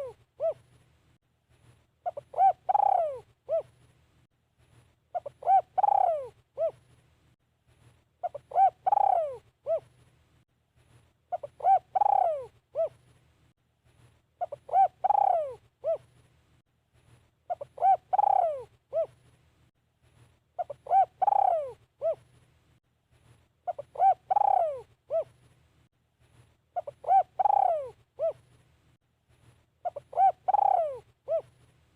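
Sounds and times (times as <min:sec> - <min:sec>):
dove cooing: 0:00.0 - 0:00.7, 0:02.0 - 0:03.8, 0:05.1 - 0:06.9, 0:08.2 - 0:10.0, 0:11.3 - 0:13.0, 0:14.4 - 0:16.1, 0:17.5 - 0:19.2, 0:20.6 - 0:22.3, 0:23.6 - 0:25.4, 0:26.8 - 0:28.5, 0:29.8 - 0:31.6.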